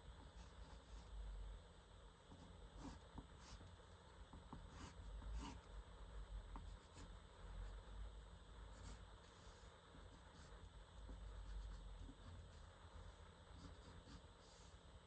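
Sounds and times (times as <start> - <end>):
low steady hum: 0.0 - 15.0
pen scratching on paper: 2.3 - 3.7, 4.3 - 5.7, 8.7 - 14.9.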